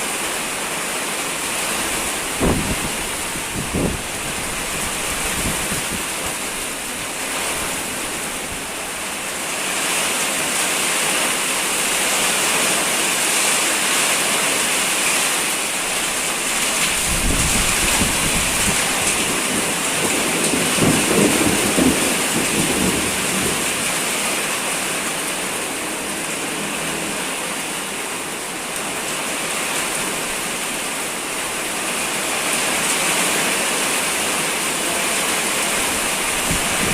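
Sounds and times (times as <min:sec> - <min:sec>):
heavy rain pouring: 0:00.0 - 0:36.9.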